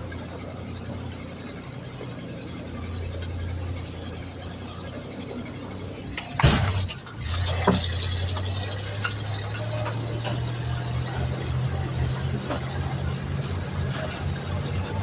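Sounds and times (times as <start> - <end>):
engine idling: 0.0 - 15.0
loud metallic clank: 6.1 - 8.3.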